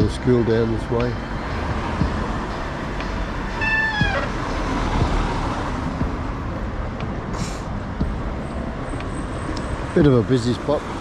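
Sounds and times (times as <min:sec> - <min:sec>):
street traffic rumbling: 0:00.0 - 0:11.0
short high squeal: 0:03.6 - 0:04.4.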